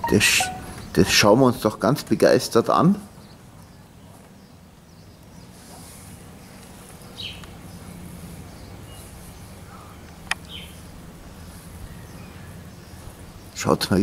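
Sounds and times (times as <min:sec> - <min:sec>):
faint high hiss: 0:00.0 - 0:01.4.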